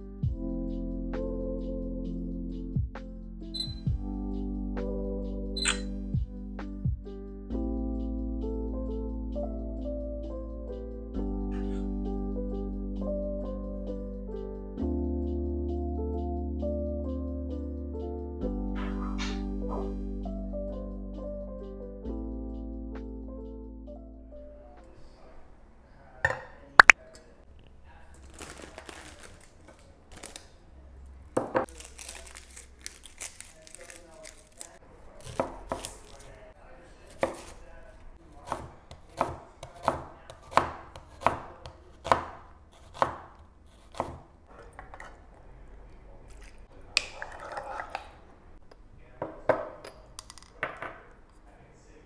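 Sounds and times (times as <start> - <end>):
knife chopping on cutting board: 35.2 - 35.9, 37.1 - 37.6, 38.4 - 44.2.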